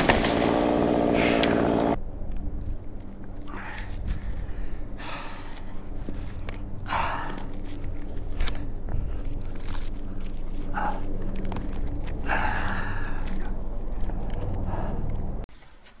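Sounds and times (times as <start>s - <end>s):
chainsaw idling: 0.0s - 2.0s
heavy breathing: 1.0s - 1.9s, 3.4s - 15.4s.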